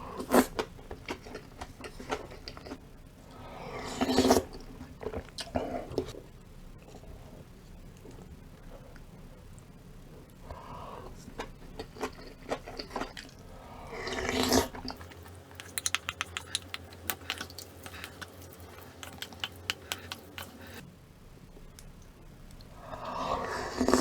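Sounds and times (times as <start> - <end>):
slurping soup: 3.8 - 4.6, 12.5 - 20.8, 23.0 - 24.0
crunchy chewing: 11.0 - 20.8.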